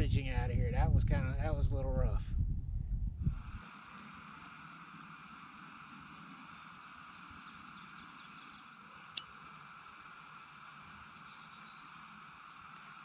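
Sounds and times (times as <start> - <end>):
faint outdoor background: 0.0 - 13.0
small bird singing: 6.3 - 8.9, 10.8 - 12.2.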